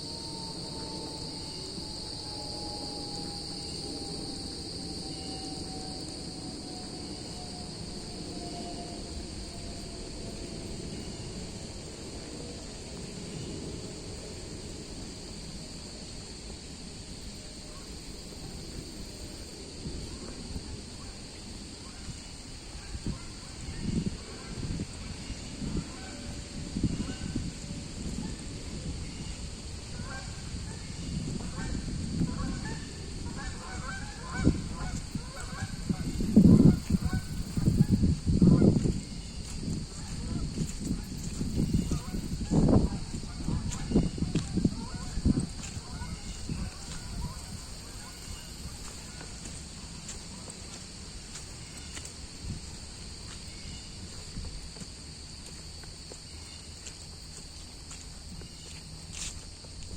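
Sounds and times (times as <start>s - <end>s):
insects chirping: 0.0s - 59.9s
footsteps on woodland trail: 10.3s - 26.5s, 27.4s - 59.9s
geese honking: 31.4s - 38.0s, 41.7s - 50.8s.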